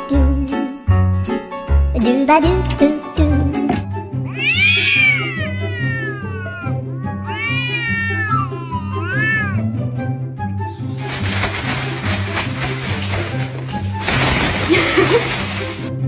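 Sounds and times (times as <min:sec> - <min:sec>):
cats yowling: 0:04.2 - 0:09.7.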